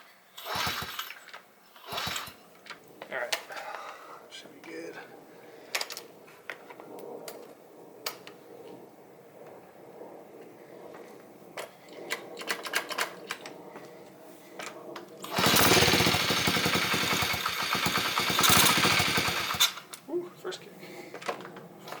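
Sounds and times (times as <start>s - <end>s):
small engine spinning over: 0.4s - 1.2s, 1.8s - 2.4s, 15.2s - 19.9s.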